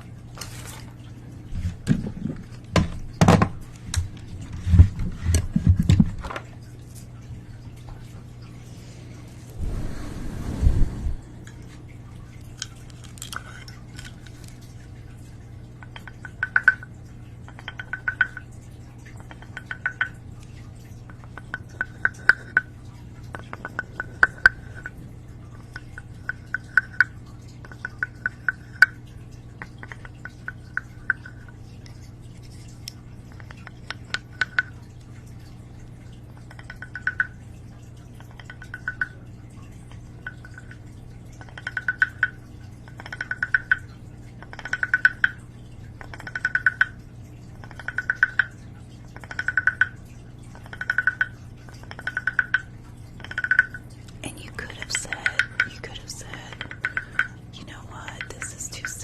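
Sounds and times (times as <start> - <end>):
rapid tapping clicks on hard object: 17.5 - 18.4, 41.4 - 43.8, 44.4 - 45.4, 49.2 - 53.8.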